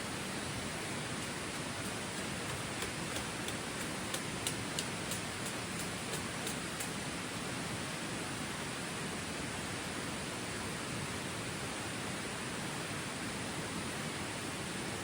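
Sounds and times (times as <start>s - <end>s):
light ticks: 2.2s - 7.0s.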